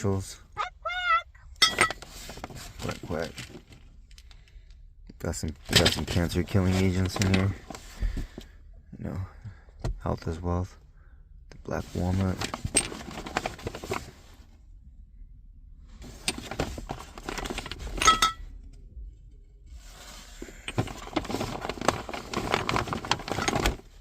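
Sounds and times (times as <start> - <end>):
shopping bag rustling: 20.7 - 24.0.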